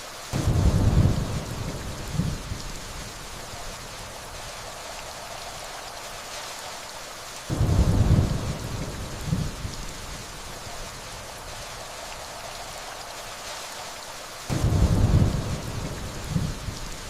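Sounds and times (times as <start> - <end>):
rainfall hissing: 0.0 - 17.0
distant thunder rumble: 0.3 - 6.0, 7.5 - 13.0, 14.5 - 17.0.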